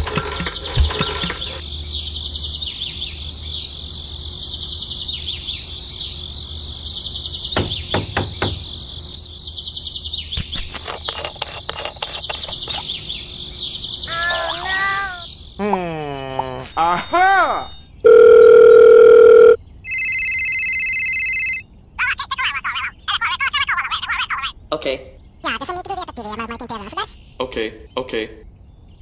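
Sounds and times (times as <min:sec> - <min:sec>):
birds and insects chirping: 0:00.0 - 0:18.0, 0:21.7 - 0:29.0.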